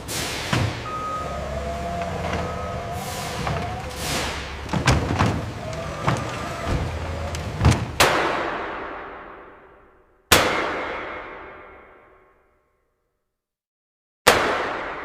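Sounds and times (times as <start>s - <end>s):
air hissing: 0.0s - 7.9s
machinery humming: 0.0s - 8.1s.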